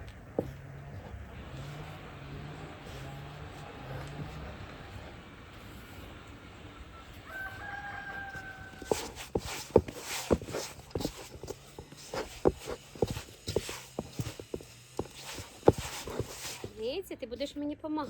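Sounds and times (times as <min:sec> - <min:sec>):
rooster crowing: 0:06.9 - 0:09.2.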